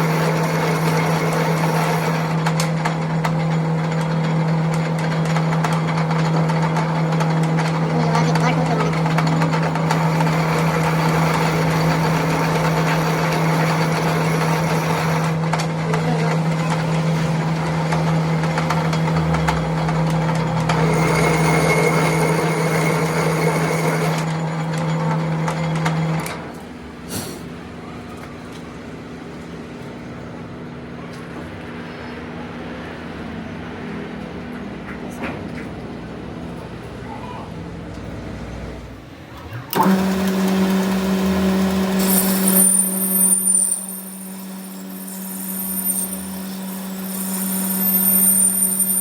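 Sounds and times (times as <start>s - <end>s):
machine motor humming: 0.0s - 26.4s, 38.0s - 49.0s.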